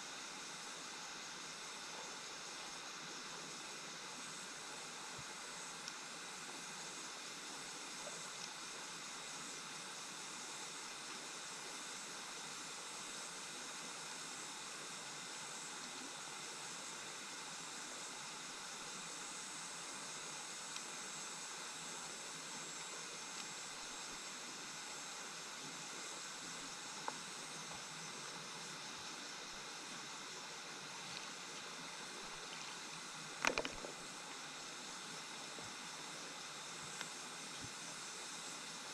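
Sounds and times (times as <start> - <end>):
stream water flowing: 0.0 - 38.9
faint ticks: 5.1 - 6.6, 7.7 - 9.1, 20.4 - 21.1, 22.7 - 24.3, 26.2 - 29.1, 31.0 - 34.3, 34.9 - 38.8.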